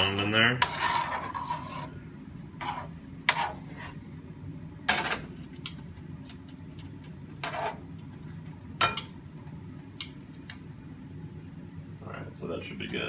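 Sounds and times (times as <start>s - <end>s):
tongs scraping and clinking pan: 0.0s - 1.9s.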